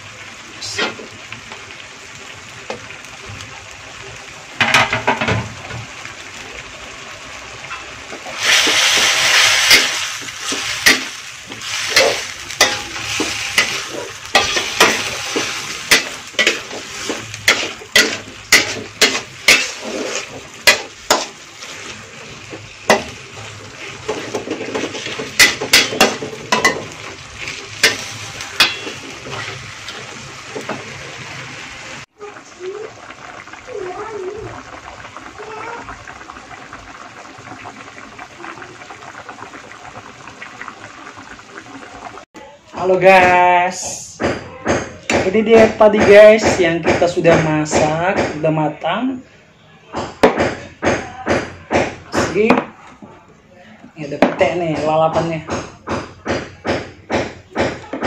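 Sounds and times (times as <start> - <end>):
meat and onions sizzling: 0.0 - 48.7, 54.0 - 58.0
spatula scraping and knocking pan: 7.7 - 31.5.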